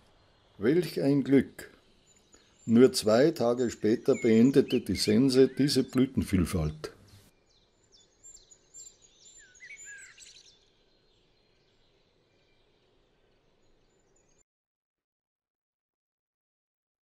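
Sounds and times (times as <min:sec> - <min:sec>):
faint steady hiss: 0:00.0 - 0:07.4
songbird calls and chirps: 0:00.0 - 0:14.4.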